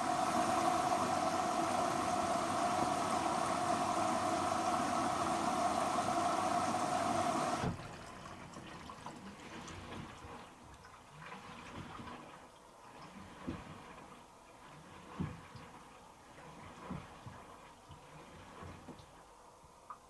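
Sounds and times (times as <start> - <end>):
water rushing into washing machine: 0.0 - 20.0.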